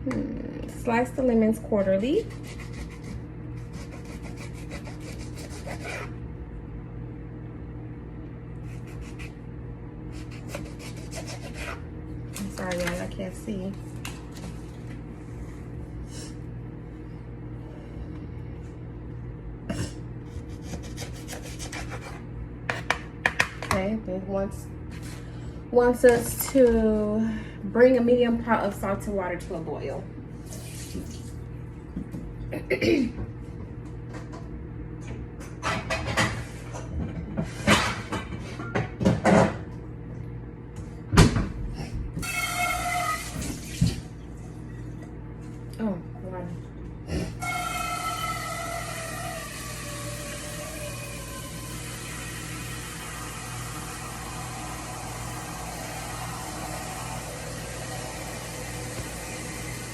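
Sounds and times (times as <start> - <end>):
steady low hum: 0.0 - 59.9
running water whistling: 42.2 - 43.8.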